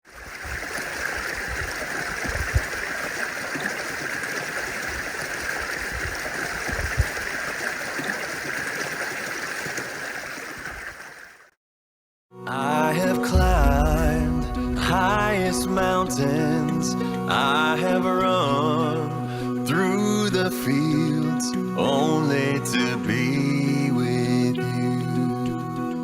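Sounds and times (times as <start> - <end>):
creek water running over rocks: 0.0 - 11.5.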